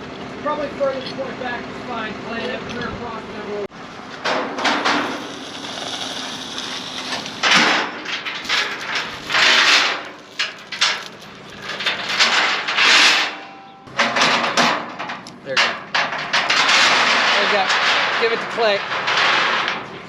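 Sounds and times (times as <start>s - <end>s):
chains and hooks rattling: 8.1s - 13.5s.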